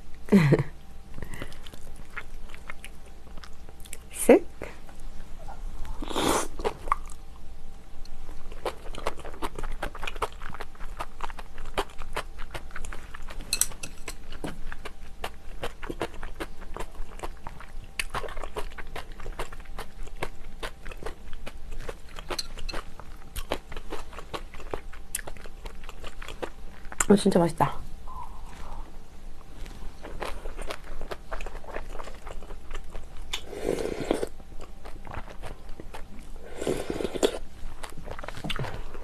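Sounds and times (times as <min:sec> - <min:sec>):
wet chewing and mouth smacks: 0:01.3 - 0:04.1, 0:08.0 - 0:27.1, 0:29.6 - 0:33.5.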